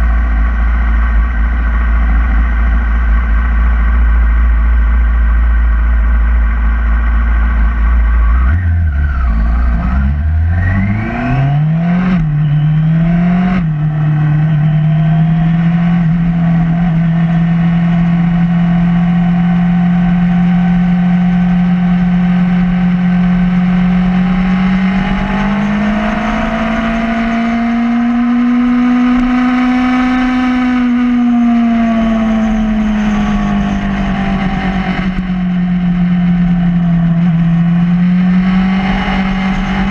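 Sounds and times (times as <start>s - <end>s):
motorcycle engine revving: 6.7s - 39.9s.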